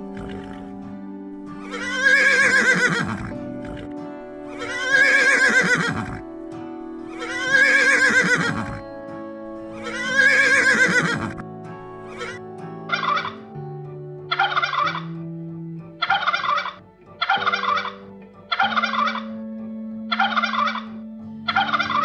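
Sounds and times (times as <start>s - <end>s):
horse whinnying: 0.0s - 0.8s, 1.6s - 6.3s, 7.1s - 8.9s, 9.7s - 11.4s, 12.1s - 13.4s, 16.0s - 19.3s
background music: 0.0s - 22.0s.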